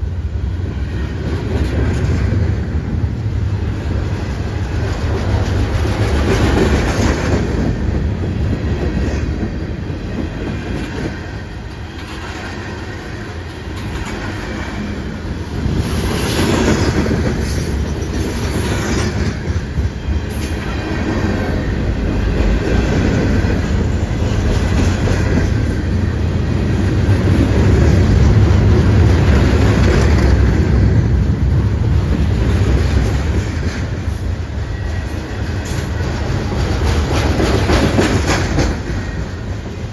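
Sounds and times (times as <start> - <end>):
train wheels rumbling on track: 0.0 - 39.9
clicking over rail joints: 35.6 - 39.9.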